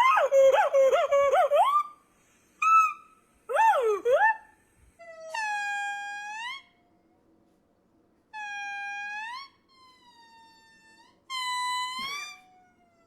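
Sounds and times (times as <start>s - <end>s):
monkey wailing calls: 0.0s - 1.9s, 11.3s - 12.5s.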